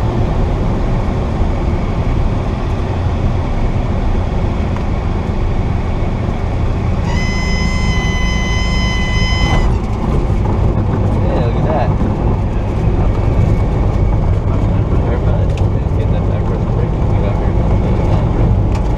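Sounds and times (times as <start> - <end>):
aircraft engine and propeller drone: 0.0 - 18.9
high-pitched warning tone: 7.0 - 9.9.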